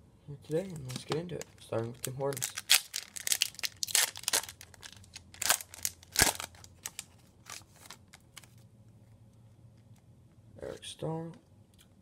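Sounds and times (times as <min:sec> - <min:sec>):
wrapper ripping: 0:00.6 - 0:08.6
wrapper crinkling: 0:00.6 - 0:08.7.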